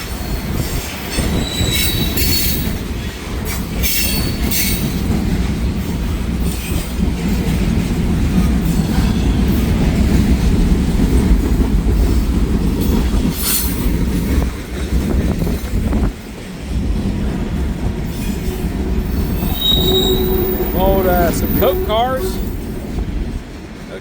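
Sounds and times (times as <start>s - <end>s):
train wheels rumbling on rails: 0.0s - 24.0s
high wheel squeals: 1.2s - 2.7s, 19.1s - 22.6s.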